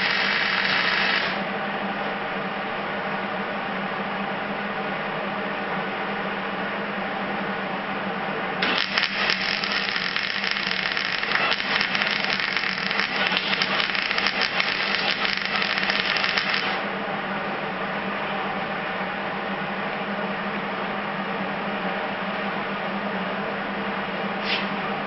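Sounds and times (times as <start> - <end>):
welding arc crackling: 0.0 - 1.4, 8.6 - 16.9
steady low hum: 0.0 - 25.0.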